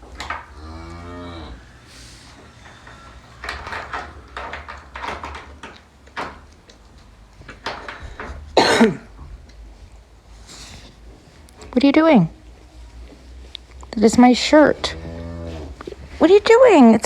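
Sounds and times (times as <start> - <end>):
cow mooing: 0.4 - 3.2, 14.7 - 15.8
short knocks and clatters: 1.6 - 10.0.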